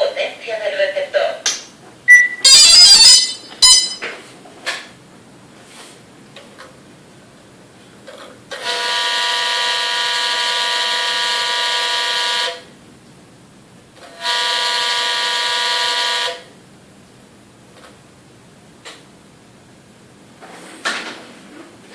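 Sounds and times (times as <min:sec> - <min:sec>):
horn-like buzzing tone: 0:02.1 - 0:04.1, 0:08.6 - 0:12.6, 0:14.1 - 0:16.5.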